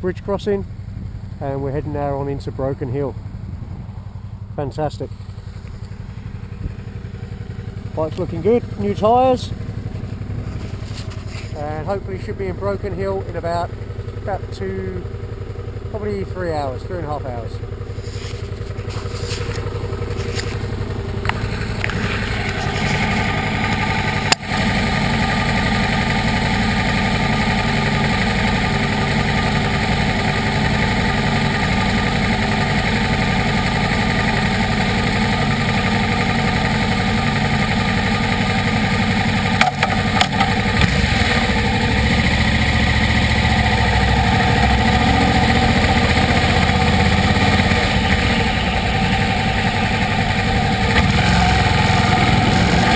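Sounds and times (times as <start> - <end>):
motorcycle engine running: 0.0 - 52.9
sharp clicks: 39.6 - 40.9.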